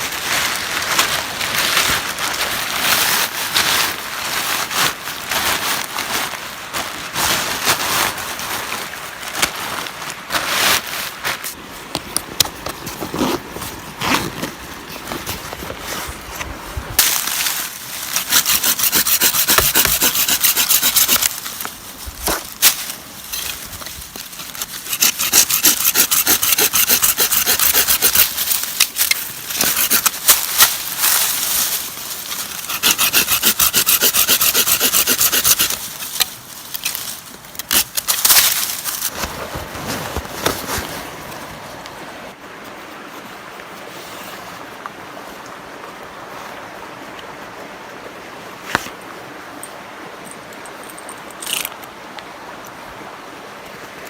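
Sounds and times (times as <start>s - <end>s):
faint outdoor hiss: 0.0s - 54.0s
hand saw cutting wood: 18.2s - 21.4s, 24.6s - 30.7s, 32.4s - 35.9s, 37.6s - 39.1s.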